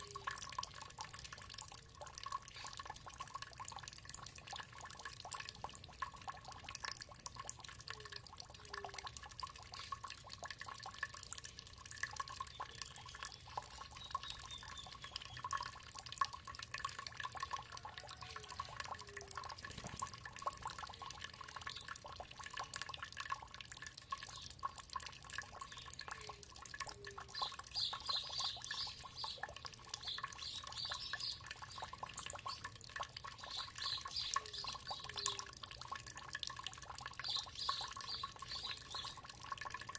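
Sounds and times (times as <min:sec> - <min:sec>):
water trickling and dripping: 0:00.0 - 0:39.9
birds calling: 0:25.6 - 0:32.7.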